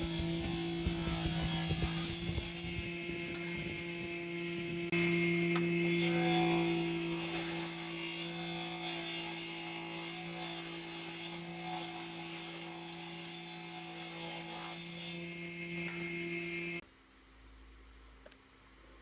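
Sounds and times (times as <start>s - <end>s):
electric hum: 0.0s - 6.0s.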